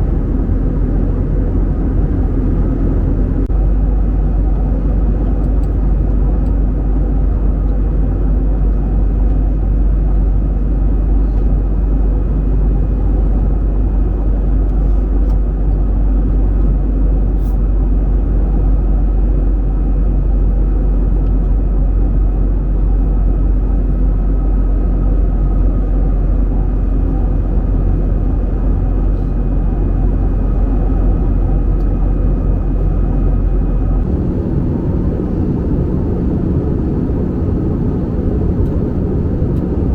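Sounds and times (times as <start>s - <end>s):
jet engines rumbling: 0.0s - 7.6s, 23.7s - 39.9s
rushing air: 28.4s - 39.9s.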